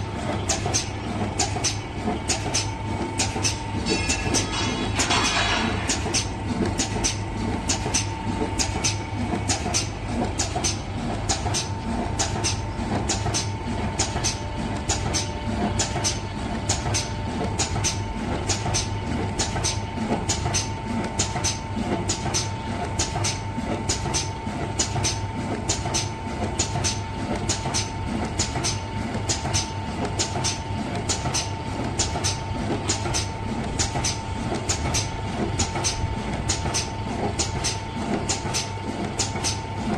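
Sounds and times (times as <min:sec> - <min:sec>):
sharp machine clicks: 0:00.4 - 0:39.9.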